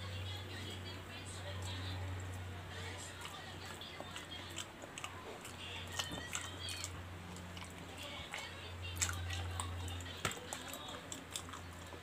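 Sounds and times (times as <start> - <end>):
man chewing with lip smacks: 3.2 - 12.0.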